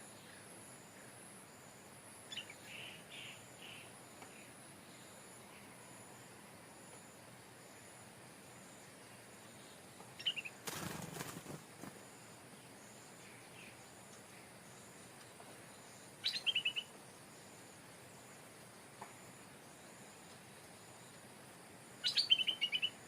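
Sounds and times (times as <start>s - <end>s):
bird chirping: 2.3s - 6.0s, 9.0s - 11.5s, 12.6s - 18.3s, 22.0s - 23.0s.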